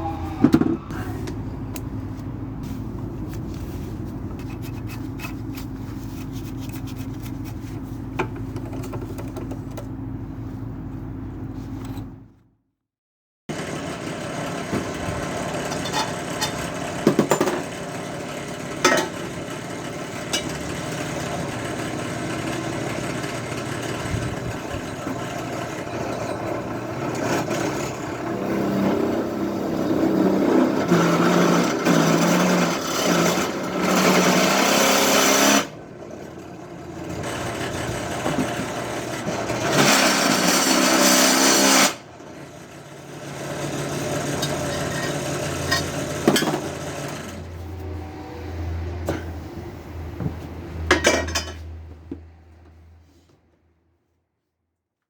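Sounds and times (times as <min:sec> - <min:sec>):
electric drill drilling: 0:37.2 - 0:42.0.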